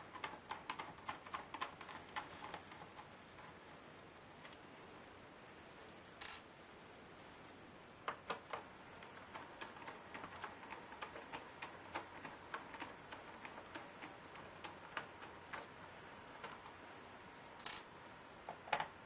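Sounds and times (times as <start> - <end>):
clicks and taps on a laptop: 0.0 - 3.6, 8.0 - 16.8.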